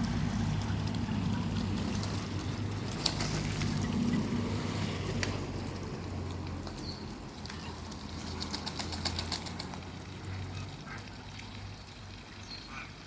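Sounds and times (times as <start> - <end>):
rapid clicks or splashes: 7.4 - 10.0
ducks calling: 7.4 - 11.4, 12.4 - 13.0.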